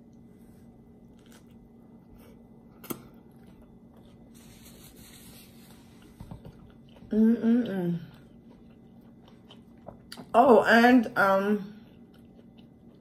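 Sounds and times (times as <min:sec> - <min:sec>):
low steady hum: 0:00.0 - 0:13.0
quiet chewing: 0:01.0 - 0:07.1, 0:08.0 - 0:10.4, 0:11.8 - 0:13.0.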